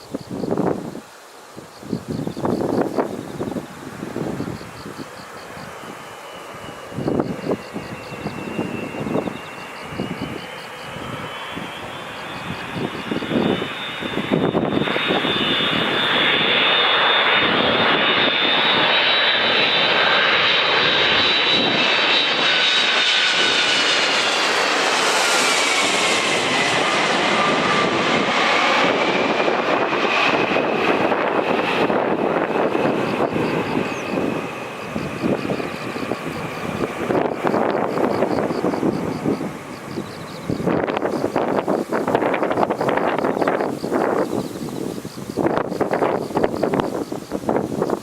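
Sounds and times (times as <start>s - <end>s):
jet airliner passing: 0.0s - 48.0s.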